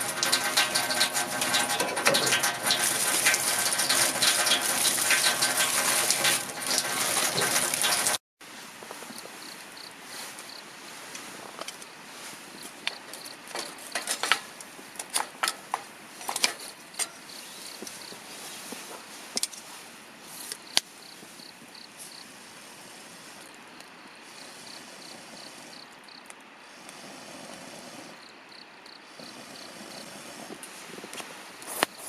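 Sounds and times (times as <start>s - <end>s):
stream hissing: 0.0s - 8.8s, 21.9s - 25.9s
campfire crackling: 0.0s - 32.0s
faint insect chirp: 9.0s - 10.8s, 16.6s - 18.7s, 20.2s - 30.5s.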